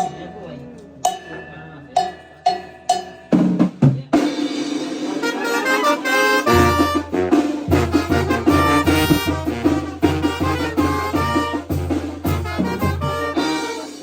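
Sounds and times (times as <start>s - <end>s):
band melody: 0.0s - 14.0s
drum strokes and percussive hits: 0.0s - 14.0s.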